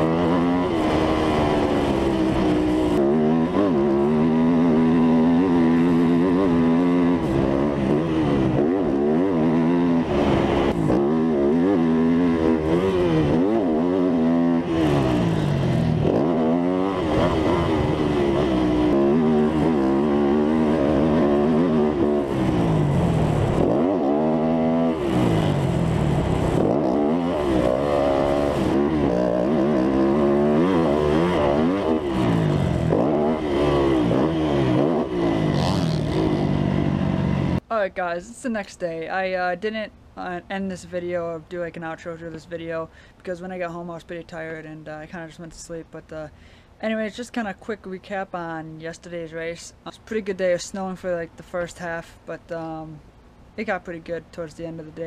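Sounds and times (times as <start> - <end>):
dirt bike engine revving: 0.0 - 37.6.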